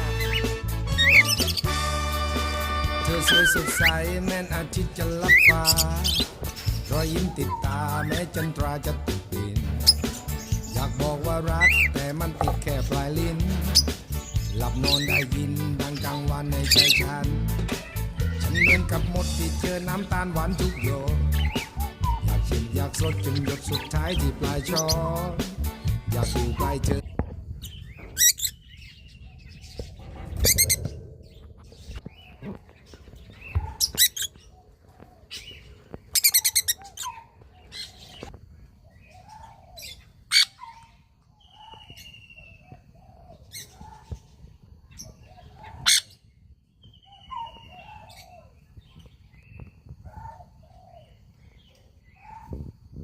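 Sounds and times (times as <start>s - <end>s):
cockatiels chirping and squawking: 0.0s - 1.8s, 3.1s - 4.2s, 5.0s - 8.6s, 9.8s - 10.8s, 11.5s - 12.0s, 13.6s - 25.1s, 27.6s - 38.4s, 39.1s - 46.3s.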